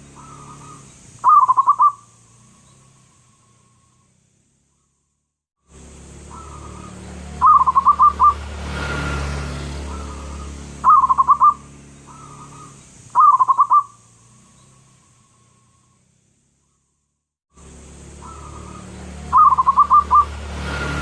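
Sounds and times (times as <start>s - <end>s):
dove cooing: 0.1s - 2.1s, 6.2s - 8.4s, 9.8s - 14.0s, 18.2s - 20.3s.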